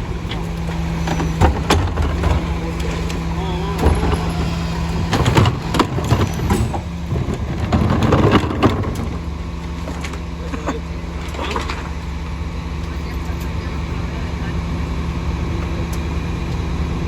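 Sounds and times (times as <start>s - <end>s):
garbage truck engine running: 0.0s - 17.0s
knocks and clatters: 0.2s - 10.2s.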